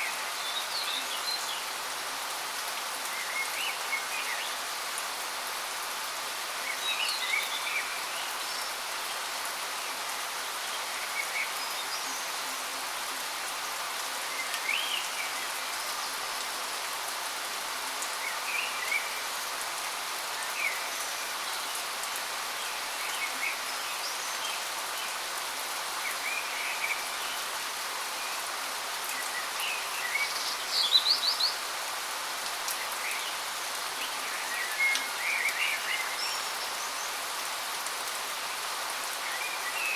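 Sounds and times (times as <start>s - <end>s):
small birds chirping: 28.2s - 31.8s.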